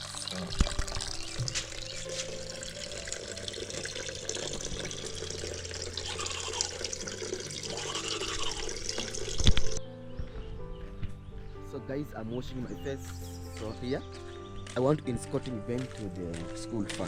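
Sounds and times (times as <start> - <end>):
tap water splashing into sink: 0.1 - 7.2.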